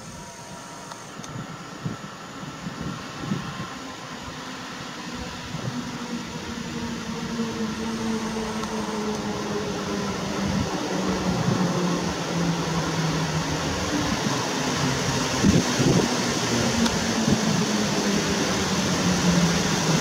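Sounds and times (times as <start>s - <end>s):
electric train humming: 0.0s - 20.0s.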